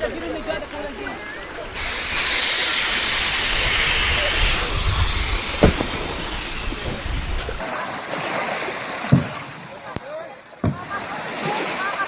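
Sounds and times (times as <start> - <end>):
air hissing from inflatable: 1.8 - 7.6
short knock: 5.6 - 7.0.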